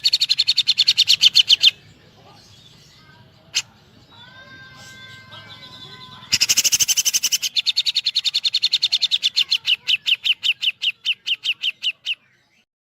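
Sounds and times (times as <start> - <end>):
bird rattling song: 6.2 - 12.1.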